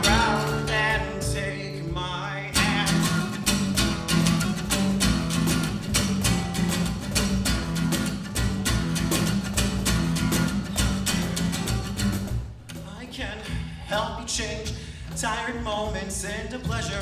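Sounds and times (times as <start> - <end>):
acoustic guitar strumming: 0.0 - 13.4.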